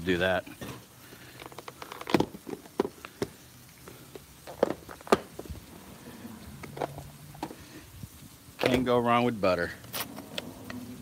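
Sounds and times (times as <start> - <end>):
grease popping: 0.0 - 11.0
low background hiss: 0.0 - 11.0
meat frying on griddle: 0.0 - 11.0.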